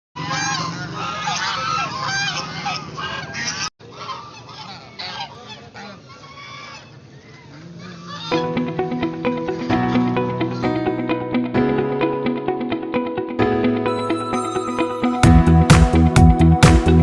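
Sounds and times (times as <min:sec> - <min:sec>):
ducks calling: 0:00.2 - 0:10.8
plucked guitar music: 0:08.3 - 0:17.0.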